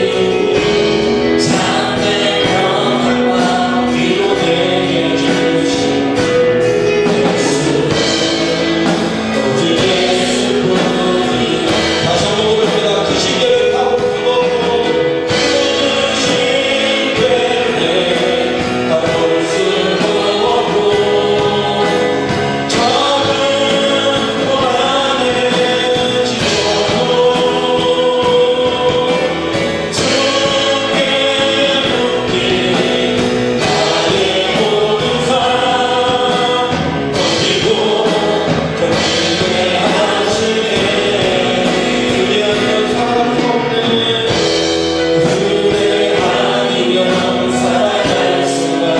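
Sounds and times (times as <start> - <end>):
congregation singing: 0.0 - 48.9
worship band playing: 0.0 - 48.9.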